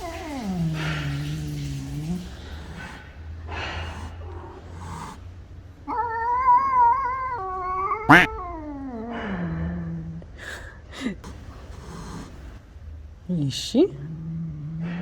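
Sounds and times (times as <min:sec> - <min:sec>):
cat yowling: 0:00.0 - 0:03.0, 0:05.8 - 0:09.5.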